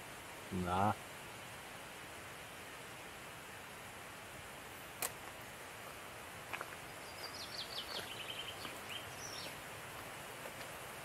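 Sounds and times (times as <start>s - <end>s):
outdoor background hiss: 0.0s - 11.0s
songbird quick high chirps: 6.8s - 9.6s.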